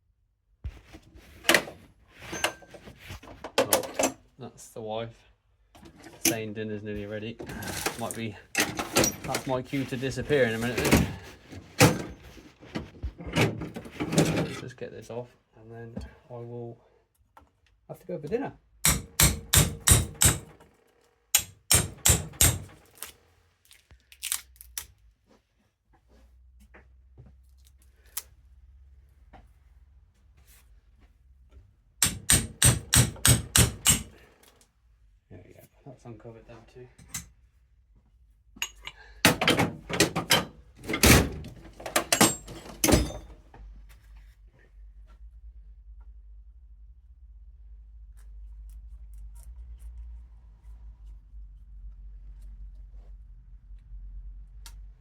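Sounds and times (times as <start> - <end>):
metal parts and tools clunking: 1.5 - 4.3, 7.4 - 14.7, 38.6 - 43.5
hammer striking metal: 18.8 - 20.5, 21.4 - 22.8, 32.0 - 34.1.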